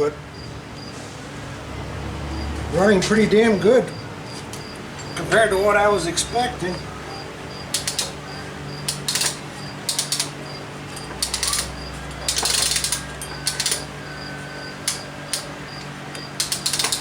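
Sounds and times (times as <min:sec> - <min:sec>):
engine humming: 0:00.0 - 0:17.0
sharp clicks: 0:07.6 - 0:17.0.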